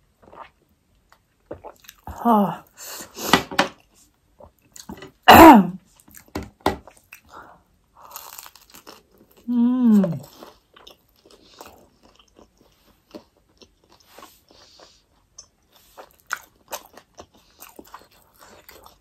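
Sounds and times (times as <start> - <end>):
crunching fried dumpling: 8.0 - 9.6, 10.2 - 19.0.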